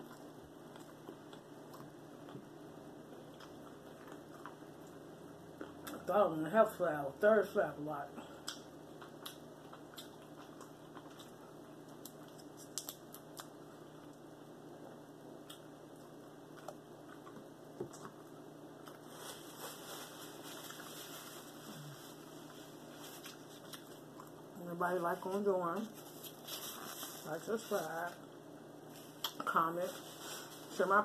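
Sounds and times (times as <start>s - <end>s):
chewing and mouth clicks: 0.0s - 2.4s, 3.2s - 5.0s, 8.4s - 14.2s, 15.4s - 19.0s
paper napkin rustling: 18.9s - 24.0s, 25.2s - 28.2s, 28.9s - 31.0s.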